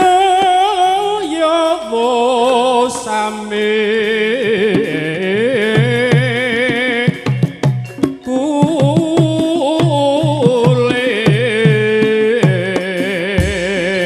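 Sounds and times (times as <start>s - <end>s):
person singing ornamented line: 0.0s - 14.0s
hand drum strokes: 4.7s - 14.0s
gamelan ensemble: 5.8s - 11.8s.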